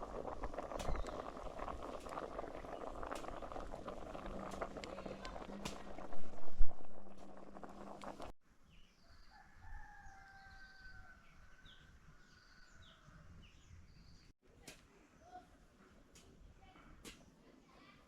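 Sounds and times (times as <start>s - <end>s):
small birds chirping: 0.7s - 3.0s
rooster crowing: 9.1s - 11.8s.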